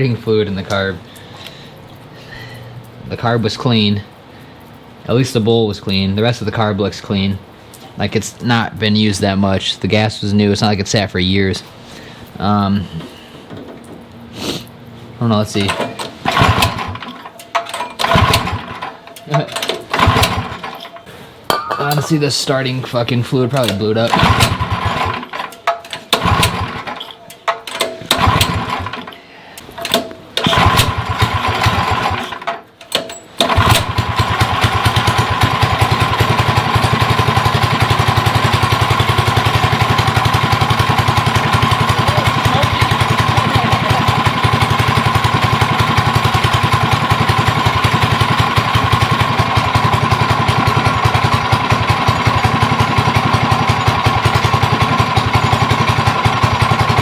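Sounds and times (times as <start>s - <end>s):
small engine sputtering and running: 16.2s - 18.9s, 19.9s - 20.8s, 24.1s - 25.5s, 26.1s - 27.1s, 28.1s - 29.1s, 30.4s - 32.5s, 33.4s - 57.0s.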